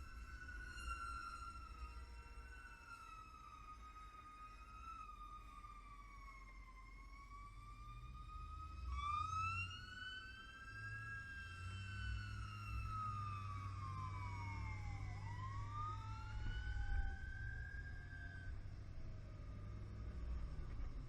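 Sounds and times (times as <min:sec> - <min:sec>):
sirens wailing: 0:00.0 - 0:18.7
low engine rumble: 0:12.7 - 0:21.0.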